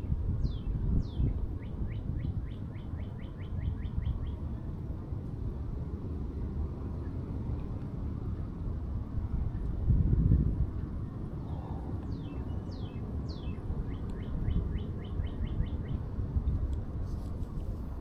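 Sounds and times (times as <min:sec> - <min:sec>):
songbird whistling notes: 0:12.1 - 0:16.0.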